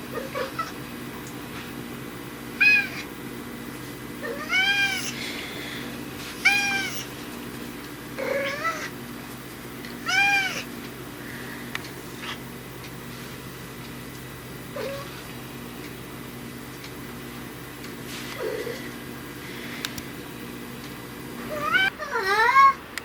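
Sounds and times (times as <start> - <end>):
cat meowing: 2.6 - 3.0, 4.2 - 5.2, 6.4 - 7.1, 8.2 - 8.9, 10.0 - 10.7, 21.5 - 22.8.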